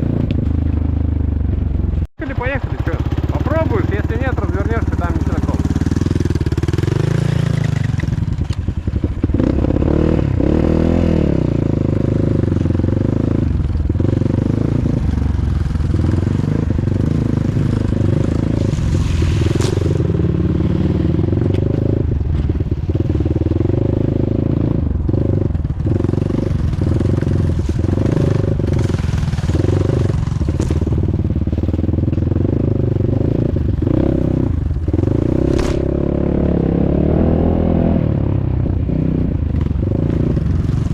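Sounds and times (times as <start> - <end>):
motorcycle engine revving: 0.0 - 40.9
clatter and scraping: 3.1 - 8.9, 17.7 - 20.2, 26.4 - 32.3.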